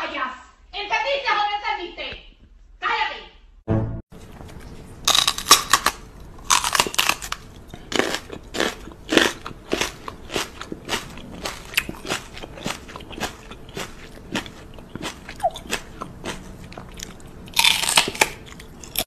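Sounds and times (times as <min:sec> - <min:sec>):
crunchy chewing: 0:04.2 - 0:19.0.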